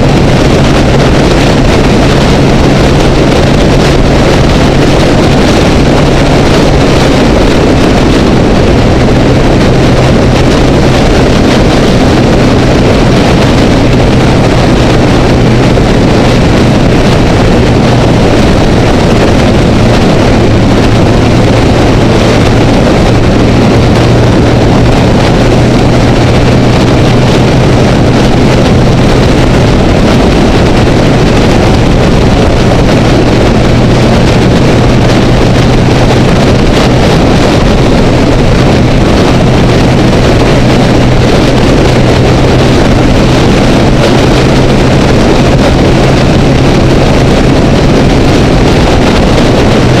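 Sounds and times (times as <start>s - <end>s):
motorcycle engine cruising: 0.0s - 50.0s
wind noise on microphone: 0.0s - 50.0s.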